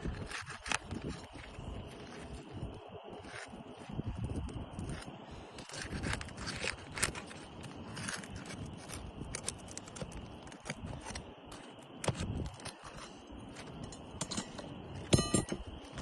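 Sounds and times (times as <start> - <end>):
hand tools scraping and clicking: 0.0 - 16.0
metallic ring: 13.8 - 15.7.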